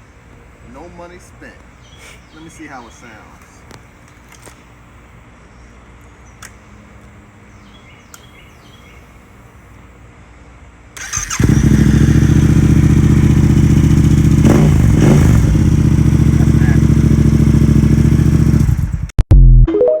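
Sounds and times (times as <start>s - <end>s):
motorcycle engine starting and idling: 11.0s - 19.1s.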